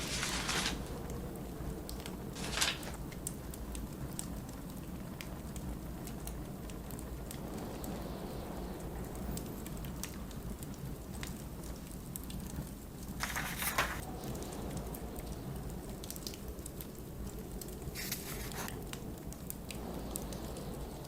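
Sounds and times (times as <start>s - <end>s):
book page turning: 0.0s - 0.9s, 2.4s - 3.0s, 13.2s - 14.0s, 18.0s - 18.7s
blizzard wind rumbling: 0.0s - 21.0s
wood fire crackling and popping: 0.0s - 21.0s.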